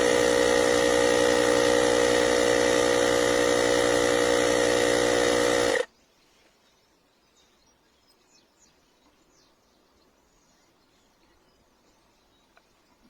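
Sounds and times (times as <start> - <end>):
air compressor humming: 0.0 - 5.9.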